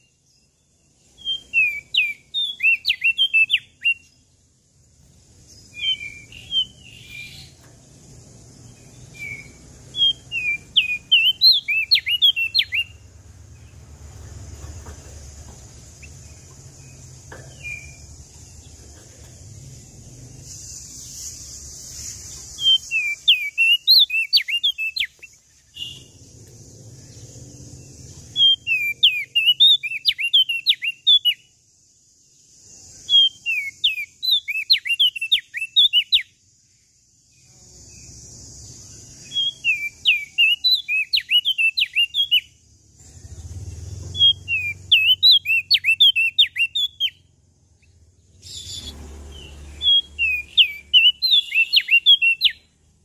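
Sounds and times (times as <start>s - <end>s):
steady high hiss: 0.0s - 29.3s, 31.3s - 34.7s, 36.2s - 40.8s
songbird singing: 0.0s - 53.0s.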